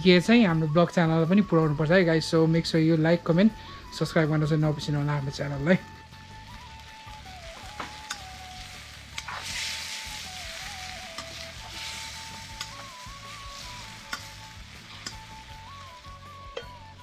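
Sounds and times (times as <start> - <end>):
chicken sizzling in hot oil: 4.7 - 17.0
metal spoon clicking on pan: 8.0 - 8.3, 12.6 - 12.8, 14.1 - 14.4, 15.0 - 15.3.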